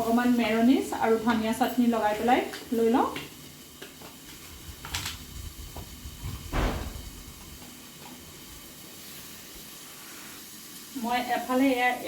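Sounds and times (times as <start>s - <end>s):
knock with dull thud: 6.5s - 7.3s.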